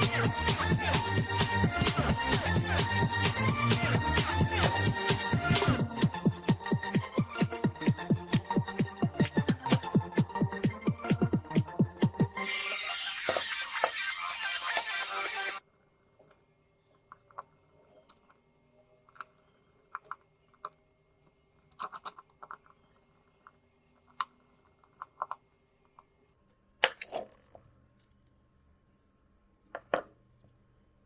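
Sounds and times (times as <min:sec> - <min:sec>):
electronic music: 0:00.0 - 0:15.6.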